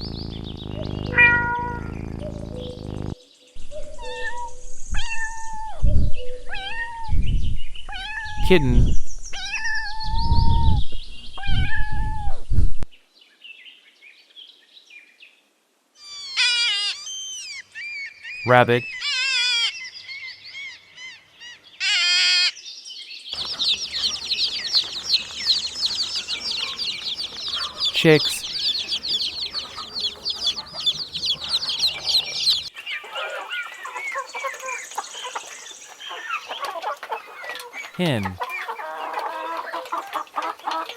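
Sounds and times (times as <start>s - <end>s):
chicks peeping: 0.0s - 3.2s, 23.4s - 40.9s
faint high chirps: 0.0s - 4.6s, 23.4s - 32.7s
kitten meowing: 0.8s - 2.1s.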